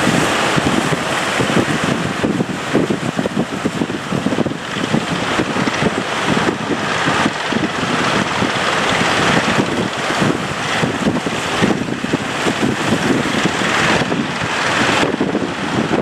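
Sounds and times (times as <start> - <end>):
rough sea hissing: 0.0 - 15.9
wind buffeting microphone: 0.0 - 16.0.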